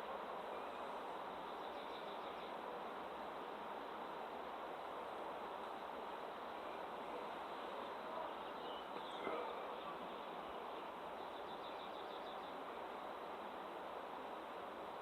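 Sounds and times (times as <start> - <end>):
background hiss: 0.0 - 15.0
songbirds chirping: 0.5 - 2.7, 6.6 - 13.3.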